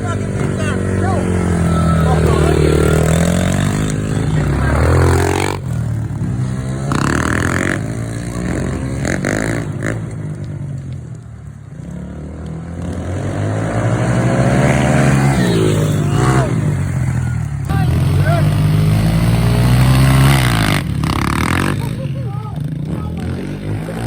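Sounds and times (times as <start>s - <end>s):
motorbike engine revving: 0.0s - 24.0s.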